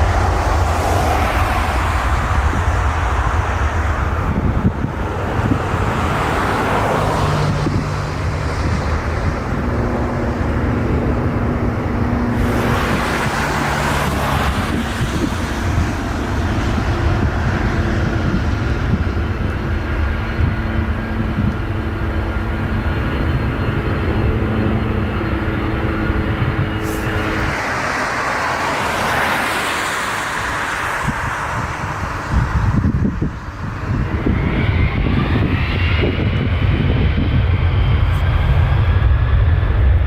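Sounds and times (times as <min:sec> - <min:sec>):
jet engines rumbling: 0:00.0 - 0:40.0
wind buffeting microphone: 0:00.0 - 0:40.0
hissing surges: 0:26.7 - 0:31.5.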